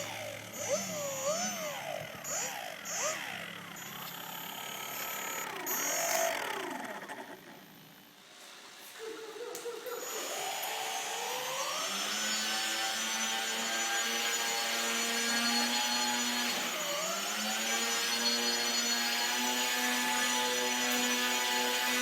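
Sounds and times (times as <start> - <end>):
toy boat motor whining: 0.0 - 8.0.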